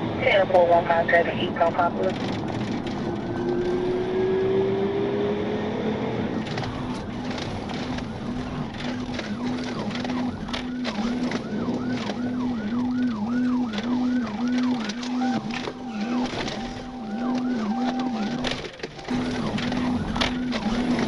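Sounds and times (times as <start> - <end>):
vehicle road noise: 0.0 - 21.0
engine accelerating: 2.4 - 21.0
police siren yelping: 6.5 - 21.0.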